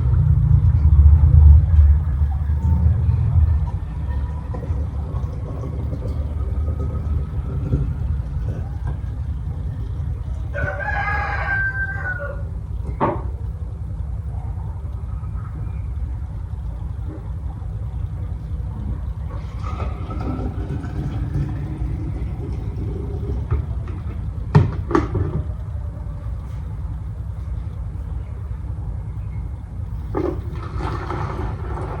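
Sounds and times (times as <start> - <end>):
low rumble: 0.0 - 32.0
rooster crowing: 10.3 - 12.6.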